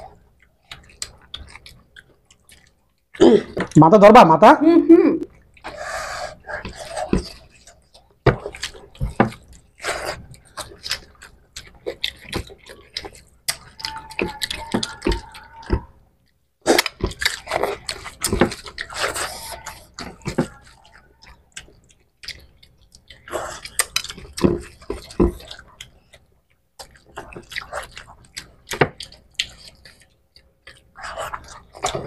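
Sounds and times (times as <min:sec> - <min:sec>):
wet chewing and lip smacks: 0:00.0 - 0:03.2, 0:05.3 - 0:32.0
fingers squishing through rice: 0:06.3 - 0:15.9.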